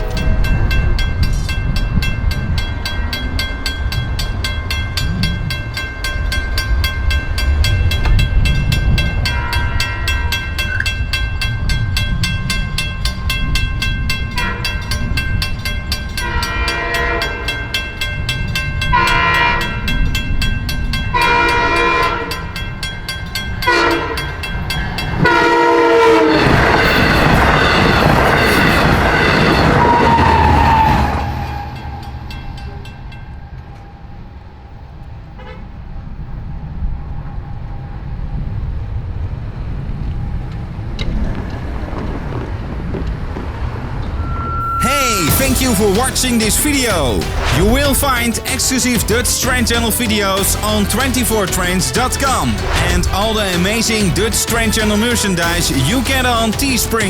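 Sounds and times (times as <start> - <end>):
crossing bell ringing: 0.0 - 34.0, 44.1 - 57.0
train rumbling: 0.0 - 57.0
train horn blasts: 8.5 - 10.4, 14.3 - 15.0, 16.1 - 17.8, 18.8 - 20.1, 20.9 - 22.7, 23.6 - 24.5, 25.2 - 32.1.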